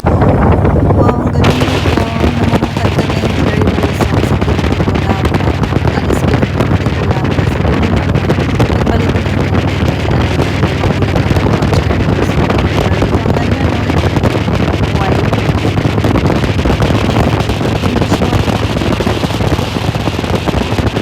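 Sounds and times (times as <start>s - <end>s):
motorcycle engine: 0.0s - 21.0s
wind buffeting microphone: 0.0s - 21.0s.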